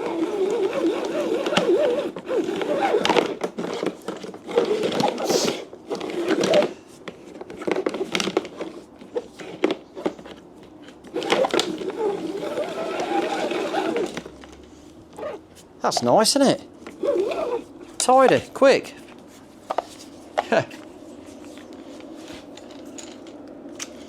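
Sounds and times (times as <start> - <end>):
hose dragging and rubbing: 0.0 - 6.7, 11.0 - 14.3, 15.1 - 15.7, 16.9 - 20.3
hose reel clicking and rattling: 0.0 - 6.7, 11.0 - 14.3, 16.9 - 18.5.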